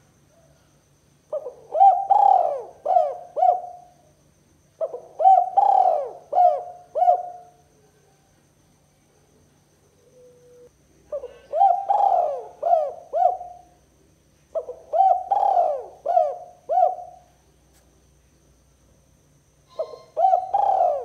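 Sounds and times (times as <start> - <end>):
dove cooing: 1.3 - 4.0, 4.8 - 7.6, 10.0 - 13.8, 14.6 - 17.3, 19.7 - 21.0.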